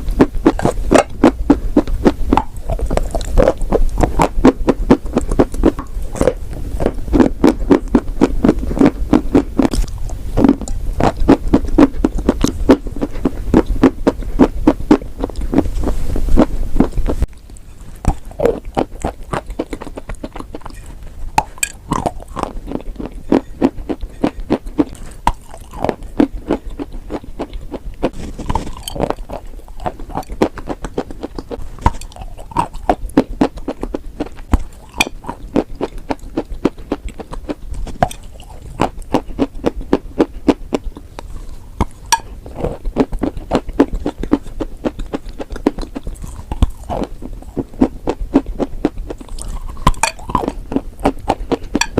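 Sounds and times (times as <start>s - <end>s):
low hum: 0.0s - 26.2s
crunching and chewing: 0.0s - 51.9s.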